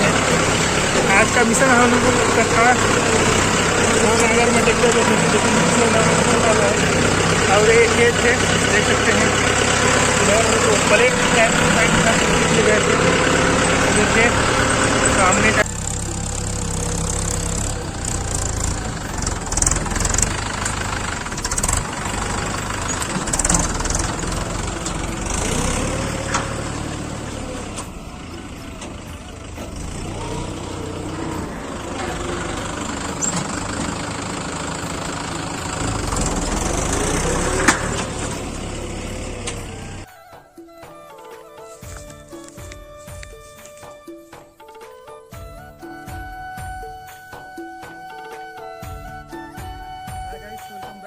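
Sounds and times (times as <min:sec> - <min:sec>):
knocks and rattles: 0:00.0 - 0:40.0
tractor diesel engine running: 0:00.0 - 0:40.1, 0:41.5 - 0:44.1.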